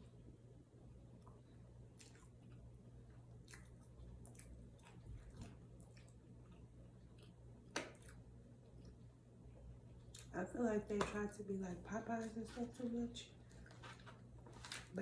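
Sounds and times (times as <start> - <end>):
person chewing food: 1.1 - 10.3, 13.4 - 14.9.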